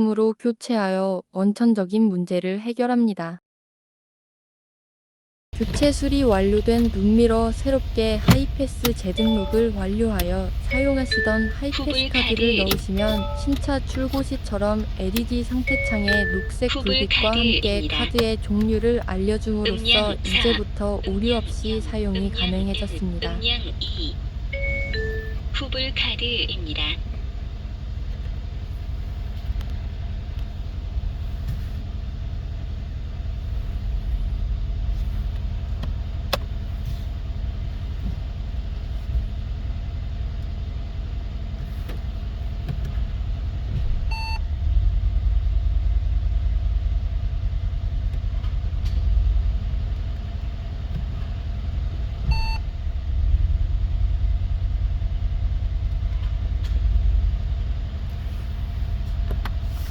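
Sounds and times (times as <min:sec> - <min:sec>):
road rumble inside car: 0:05.6 - 0:59.9
short electronic beeps: 0:09.1 - 0:09.8, 0:10.6 - 0:13.7, 0:15.6 - 0:16.7, 0:24.5 - 0:25.4, 0:52.3 - 0:52.6.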